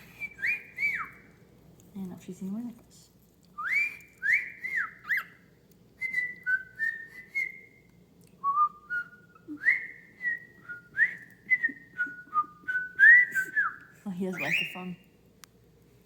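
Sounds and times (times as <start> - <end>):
bird whistling notes: 0.0 - 1.3, 3.6 - 5.4, 8.5 - 15.0.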